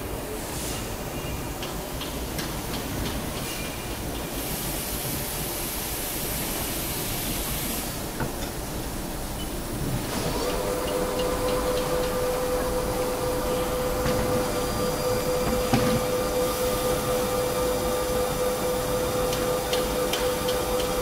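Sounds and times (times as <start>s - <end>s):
metal lathe whining: 10.1s - 21.0s.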